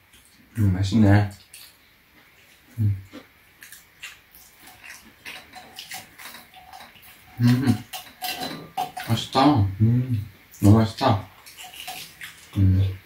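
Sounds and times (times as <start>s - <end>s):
chewing and lip-smacking: 1.3s - 8.0s, 11.3s - 12.6s
person humming: 2.8s - 3.0s.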